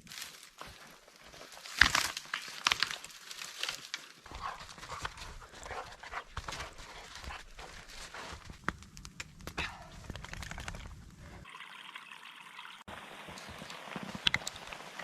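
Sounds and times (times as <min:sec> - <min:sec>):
sharp crunches and clicks: 0:01.3 - 0:11.4.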